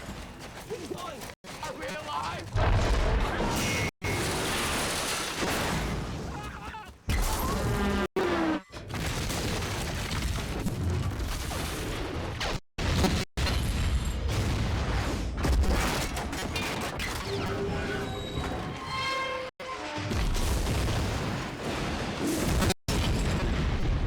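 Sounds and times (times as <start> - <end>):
explosions and booms: 2.4 - 8.0, 8.7 - 17.4, 20.0 - 24.0.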